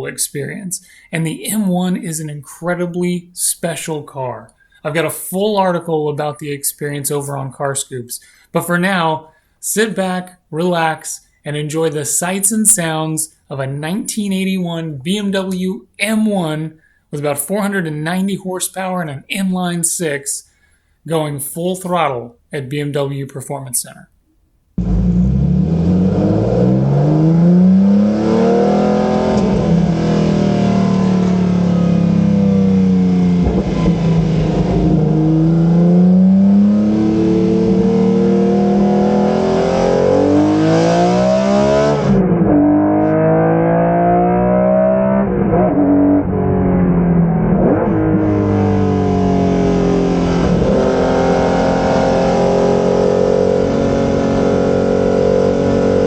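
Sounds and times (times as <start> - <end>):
race car engine revving: 24.8 - 56.0.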